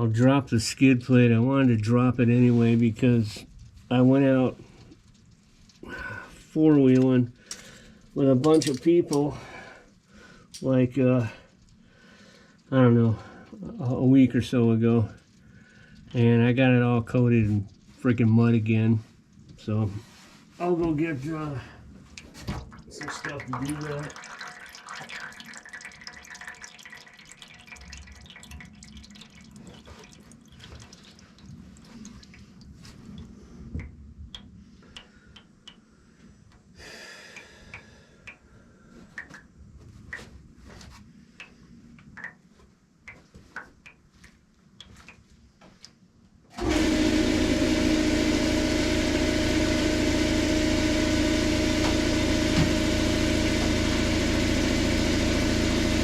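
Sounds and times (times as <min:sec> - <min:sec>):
tools and parts rattling: 0:08.4 - 0:09.3
loud steady machine noise: 0:46.6 - 0:56.0.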